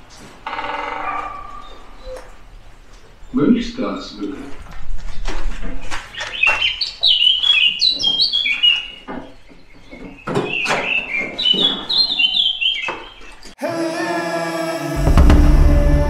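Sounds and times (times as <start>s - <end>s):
songbird chirping: 0.2s - 13.6s
music: 13.6s - 16.0s.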